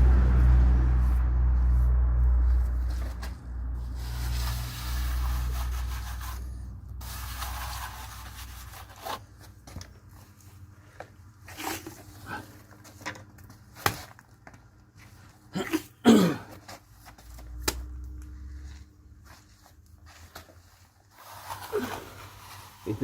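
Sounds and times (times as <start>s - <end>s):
low rumble: 0.0s - 7.5s
tool scraping plaster: 3.9s - 9.6s, 20.3s - 23.0s.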